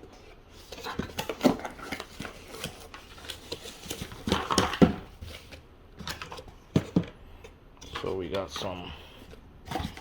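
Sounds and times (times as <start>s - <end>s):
packaging rustling: 0.6s - 7.0s.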